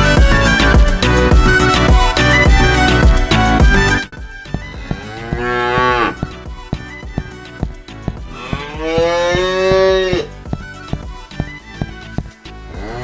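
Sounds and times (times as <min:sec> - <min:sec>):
cow mooing: 0:04.8 - 0:06.3, 0:08.2 - 0:10.3, 0:12.7 - 0:13.0.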